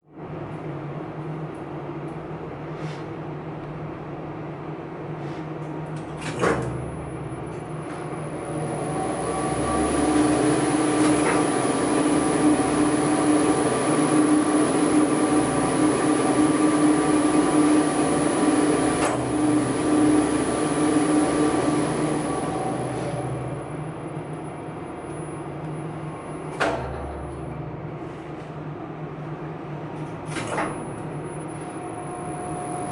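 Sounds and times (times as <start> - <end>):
elevator machinery humming: 3.4 - 32.9
high whine: 6.8 - 26.6
loud mechanical clack: 26.5 - 27.5.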